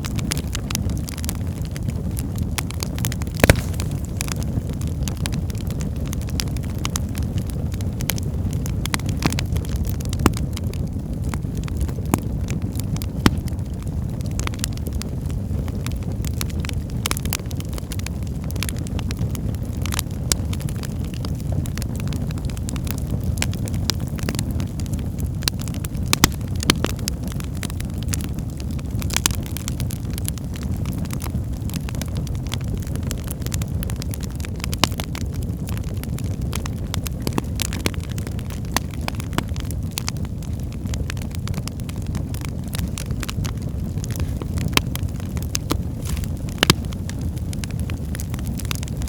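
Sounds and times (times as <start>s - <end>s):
wood fire crackling and popping: 0.0s - 49.0s.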